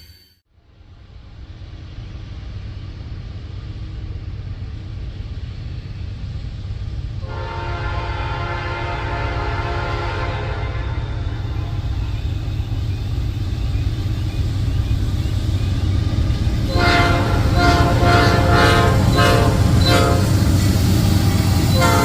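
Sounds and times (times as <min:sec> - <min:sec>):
freight train rumbling: 0:00.0 - 0:22.0
locomotive horn: 0:07.2 - 0:11.8, 0:16.7 - 0:20.5, 0:21.7 - 0:22.0.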